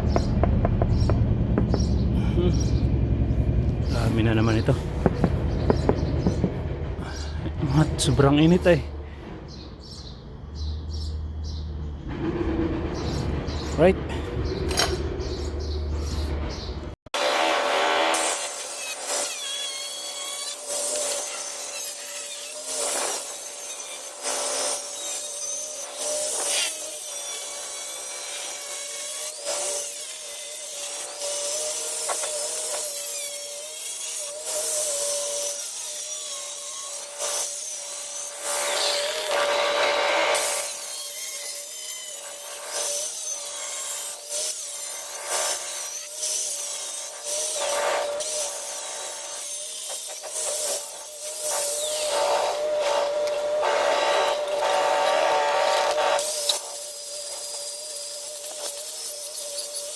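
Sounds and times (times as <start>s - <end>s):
grinder disc rasping on tile: 0.0s - 8.7s, 18.6s - 59.9s
electric grinder whining: 17.2s - 59.9s.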